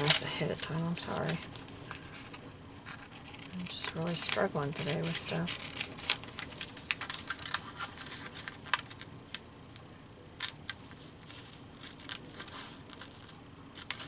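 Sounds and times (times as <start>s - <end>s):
scissors snipping paper: 0.0s - 2.3s, 2.9s - 9.1s, 10.4s - 14.0s.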